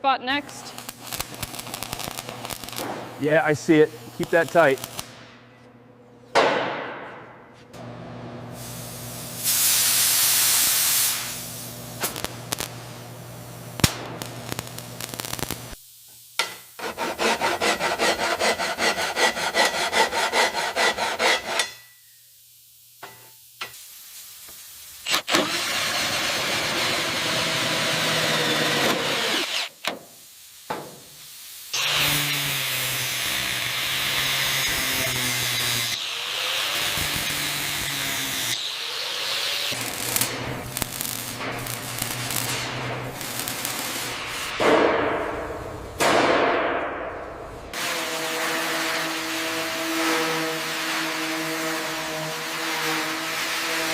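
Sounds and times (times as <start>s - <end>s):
steady abrasive tool noise: 0.5s - 5.3s, 16.4s - 21.8s, 25.0s - 29.8s, 31.7s - 44.6s, 47.7s - 53.9s
short hiss: 8.6s - 12.7s.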